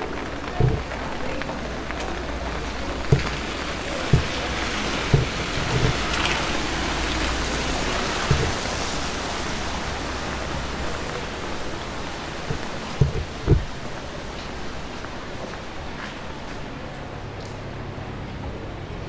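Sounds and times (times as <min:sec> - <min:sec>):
steady rain: 0:00.0 - 0:19.0
soft low thumps: 0:00.6 - 0:01.0, 0:02.9 - 0:06.2, 0:08.2 - 0:08.8, 0:12.4 - 0:13.8.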